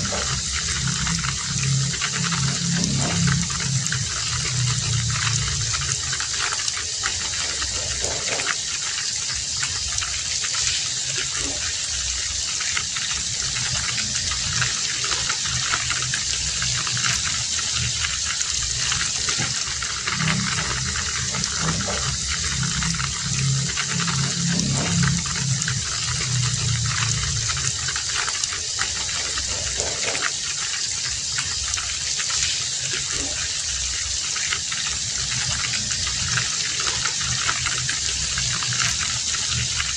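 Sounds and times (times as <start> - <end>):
low rumble: 0.0 - 8.4, 13.1 - 30.3
heavy rain hissing: 0.0 - 39.9.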